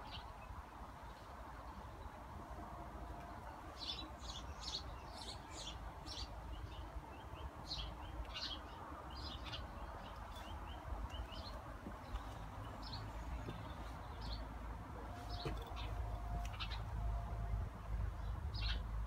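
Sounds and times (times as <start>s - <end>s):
small birds chirping: 3.8s - 14.5s.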